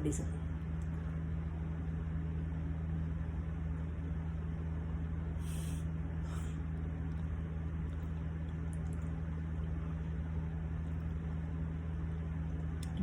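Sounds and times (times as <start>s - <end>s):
low electrical hum: 0.0s - 13.0s
soft hissing: 5.4s - 6.5s.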